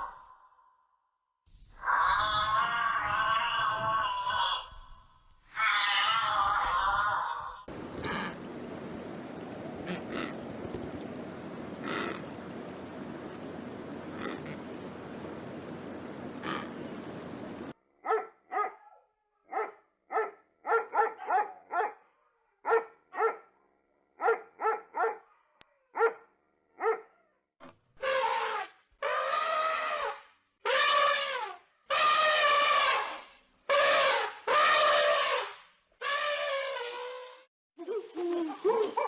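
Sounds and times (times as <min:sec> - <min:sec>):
dog drawn-out calls: 0:11.8 - 0:12.3, 0:16.4 - 0:16.8
dog barking: 0:18.0 - 0:23.6, 0:24.2 - 0:27.2.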